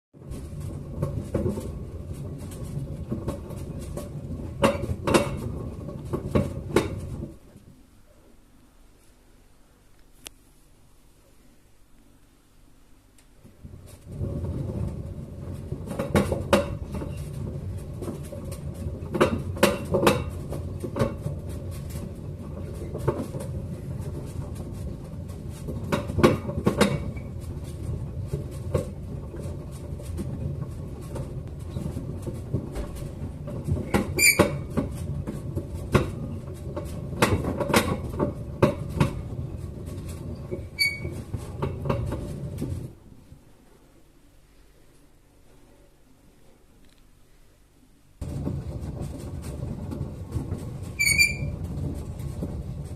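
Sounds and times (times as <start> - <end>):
washing machine rumbling: 0.1 - 7.9, 13.4 - 43.6, 48.2 - 52.9
sharp knocks and clatters: 0.2 - 7.8, 13.4 - 43.0, 48.2 - 52.9.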